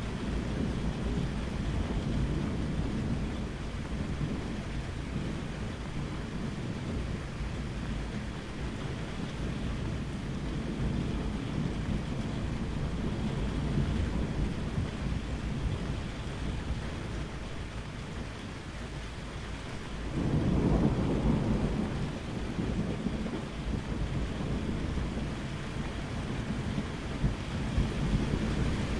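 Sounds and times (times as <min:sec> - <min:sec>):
low rumble of thunder: 0:00.0 - 0:28.9
steady rain: 0:00.0 - 0:28.9
thunder rolling: 0:20.0 - 0:28.9.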